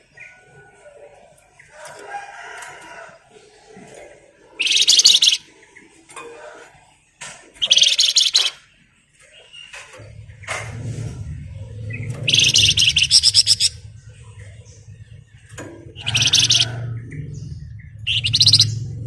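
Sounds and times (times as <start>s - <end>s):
soft bird chirps: 4.4s - 6.0s, 7.6s - 10.6s, 11.6s - 19.0s
songbird rattling trill: 4.6s - 5.5s, 7.6s - 8.6s, 11.9s - 13.9s, 15.4s - 19.0s.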